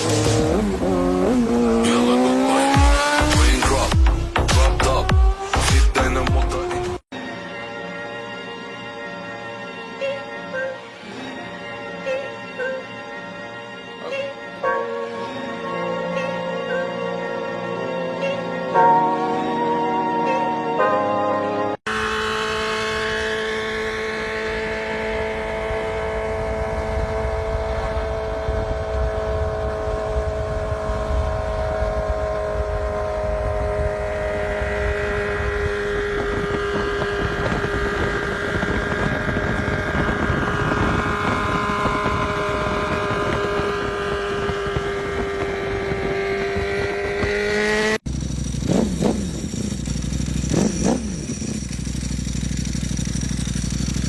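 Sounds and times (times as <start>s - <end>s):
motorcycle engine at high revs: 0.0s - 7.1s, 21.8s - 54.0s.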